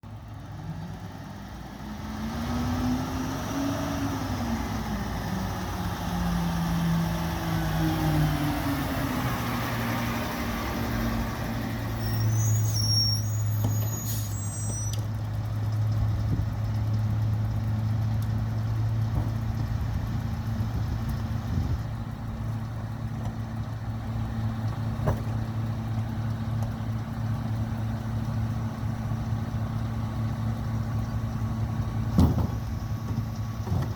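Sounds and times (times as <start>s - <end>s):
garbage truck diesel engine running: 0.0s - 3.3s, 4.1s - 33.9s
short high squeaks: 11.9s - 15.1s.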